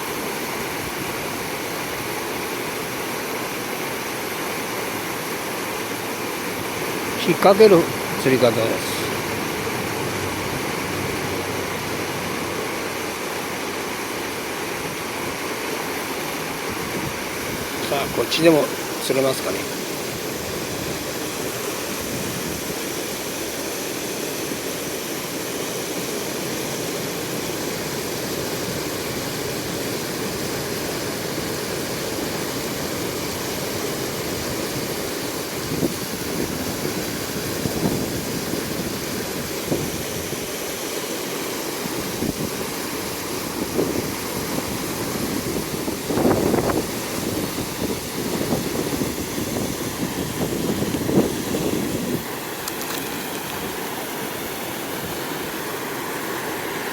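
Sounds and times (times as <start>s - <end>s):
river water rushing: 0.0s - 56.9s
wind gusts on microphone: 16.1s - 23.0s, 28.4s - 40.6s, 41.8s - 55.5s.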